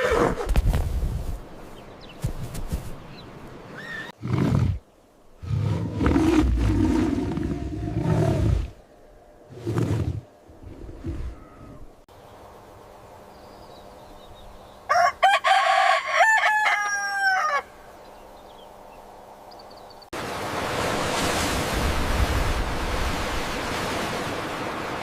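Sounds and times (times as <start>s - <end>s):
rooster crowing: 14.9s - 17.8s.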